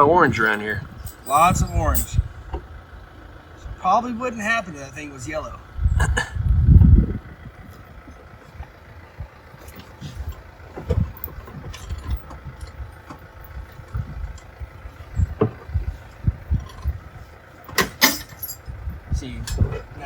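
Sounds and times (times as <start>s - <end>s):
diesel engine idling: 0.0s - 20.0s
low thumps and knocks: 15.2s - 17.0s.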